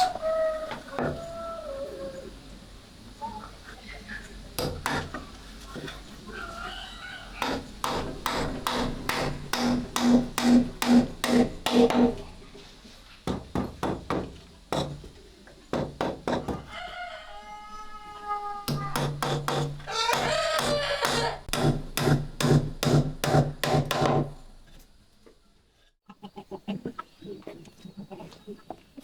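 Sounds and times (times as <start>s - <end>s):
rooster crowing: 0.0s - 2.4s, 6.3s - 7.5s, 16.4s - 19.1s, 19.8s - 21.5s
chickens clucking: 0.0s - 7.8s, 16.4s - 19.0s, 19.8s - 21.5s, 25.2s - 29.0s.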